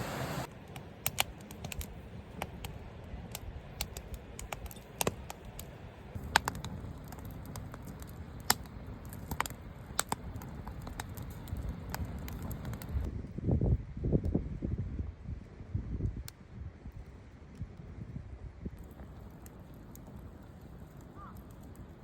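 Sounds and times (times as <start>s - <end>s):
campfire crackling: 0.0s - 13.1s, 18.8s - 22.0s.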